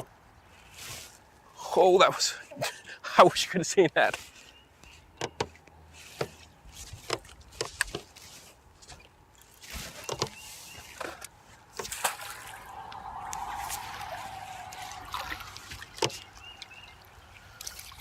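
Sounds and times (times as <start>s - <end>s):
water splashing and sloshing: 5.5s - 18.0s.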